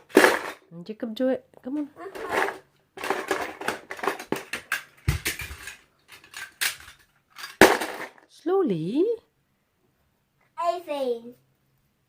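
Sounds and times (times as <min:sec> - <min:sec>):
toy cars clattering: 0:00.0 - 0:00.6, 0:02.1 - 0:08.3.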